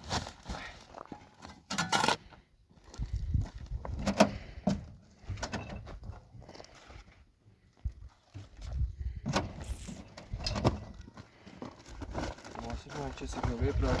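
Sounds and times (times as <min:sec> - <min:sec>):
knocks and clatters of objects: 0:08.3 - 0:14.0.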